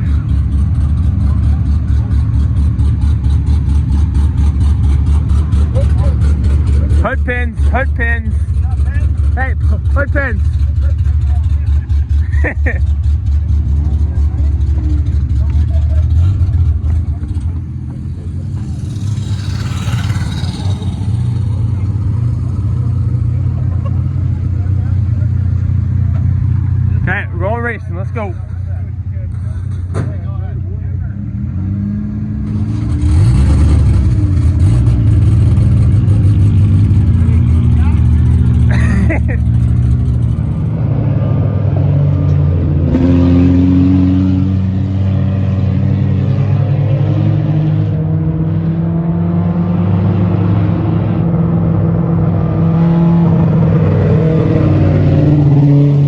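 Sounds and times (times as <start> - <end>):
race car engine idling: 0.0 - 31.3, 35.8 - 40.7.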